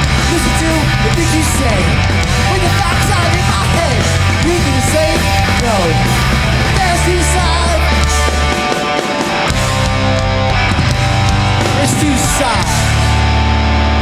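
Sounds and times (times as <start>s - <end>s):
bass guitar: 0.0s - 14.0s
distorted guitars: 0.0s - 14.0s
drums: 0.0s - 14.0s
person singing: 0.2s - 9.0s.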